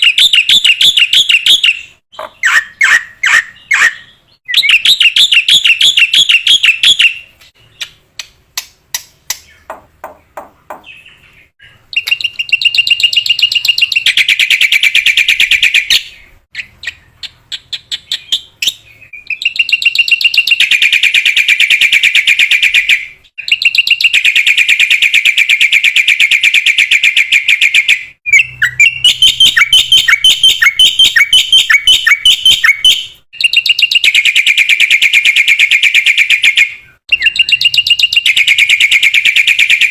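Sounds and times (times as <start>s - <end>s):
bird singing rapid chattering notes: 0.0s - 26.4s, 27.6s - 39.9s
sharp clicks: 7.3s - 9.8s, 12.0s - 12.7s.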